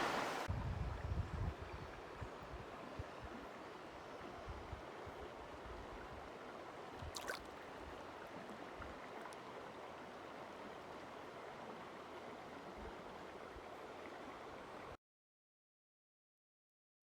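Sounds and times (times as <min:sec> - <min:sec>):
stream rushing: 0:00.0 - 0:00.5, 0:04.8 - 0:14.9.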